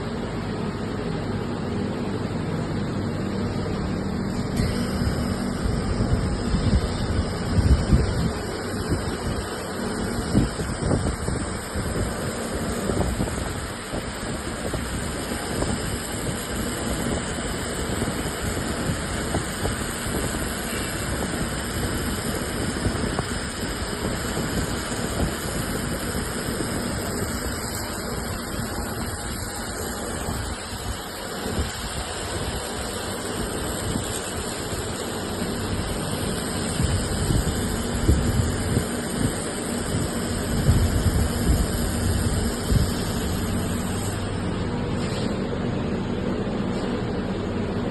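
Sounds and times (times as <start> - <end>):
industrial machinery humming: 0.0 - 47.9.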